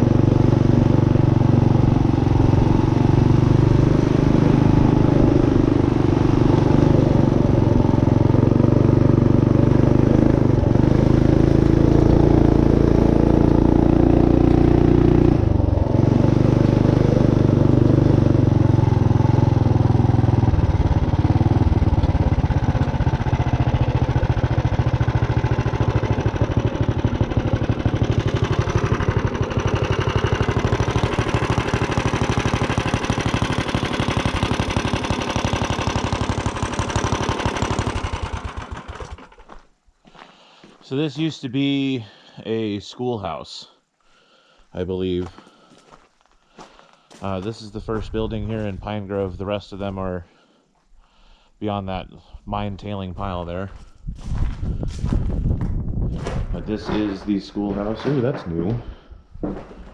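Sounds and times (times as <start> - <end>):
minibike engine running: 0.0 - 39.6.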